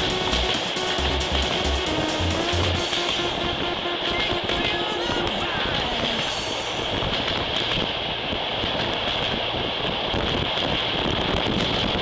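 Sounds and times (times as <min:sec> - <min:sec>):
wind on microphone: 0:05.6 - 0:12.0.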